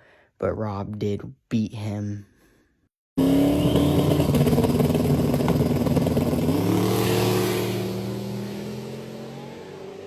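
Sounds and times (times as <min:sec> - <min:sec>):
race car engine revving: 0:03.2 - 0:10.0.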